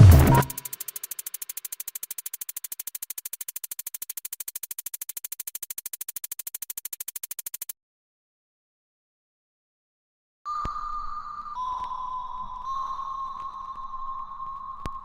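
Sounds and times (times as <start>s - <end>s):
synthesized pulsing: 0.0s - 7.7s.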